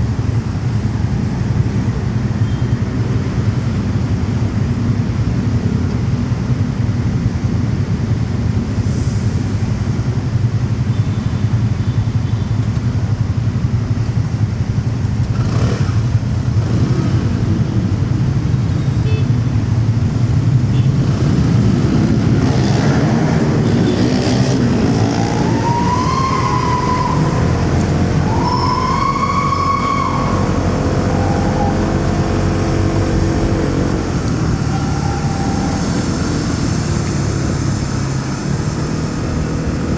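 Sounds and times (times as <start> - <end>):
droning nearby engines: 0.0 - 39.9
road traffic: 0.0 - 39.9
wind: 0.0 - 39.9
motorcycle engine rumbling: 23.4 - 39.9
rising and falling high tones: 24.5 - 37.0.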